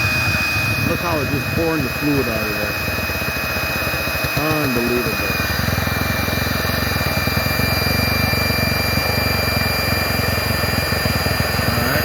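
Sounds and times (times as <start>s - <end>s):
electric air pump running: 0.0s - 12.0s.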